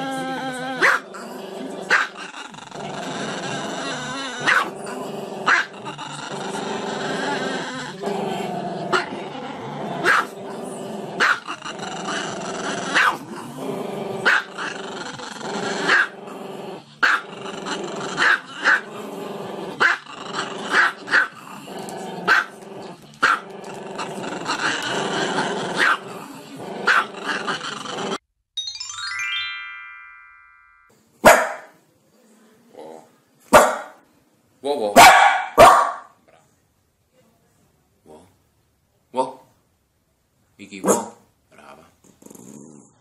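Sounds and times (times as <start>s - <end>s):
dog growling: 0.0s - 28.2s, 42.0s - 43.0s
small dog barking: 0.8s - 1.0s, 4.4s - 4.7s, 10.0s - 10.3s, 11.2s - 11.4s, 13.0s - 13.2s, 20.7s - 21.3s, 22.3s - 22.5s, 31.2s - 31.8s, 33.5s - 34.0s, 35.0s - 36.2s, 40.8s - 41.2s.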